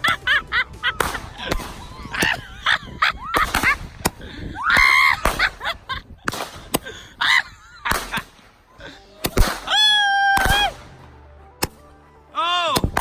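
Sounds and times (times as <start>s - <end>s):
roman candle pops: 3.4s - 11.8s.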